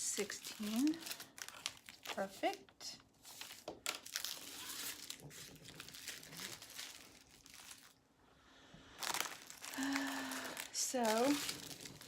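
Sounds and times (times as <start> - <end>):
plastic bags crinkling: 0.0 - 8.0, 8.9 - 12.0.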